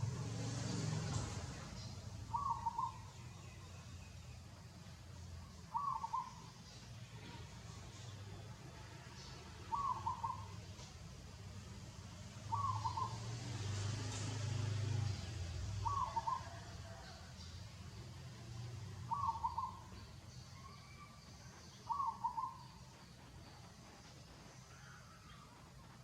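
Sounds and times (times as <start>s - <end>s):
bird hooting call: 2.3s - 3.1s, 5.7s - 6.5s, 9.7s - 10.6s, 12.5s - 13.3s, 15.8s - 17.1s, 19.1s - 21.2s, 21.8s - 22.8s.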